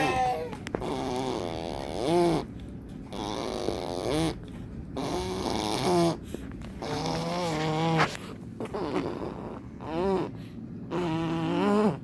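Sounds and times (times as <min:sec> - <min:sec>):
mouth fart noises on arm: 0:06.8 - 0:09.5.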